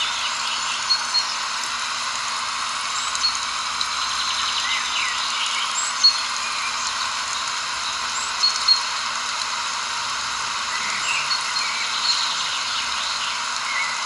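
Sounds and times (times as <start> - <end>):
chorus of calling animals: 10.7 - 13.0.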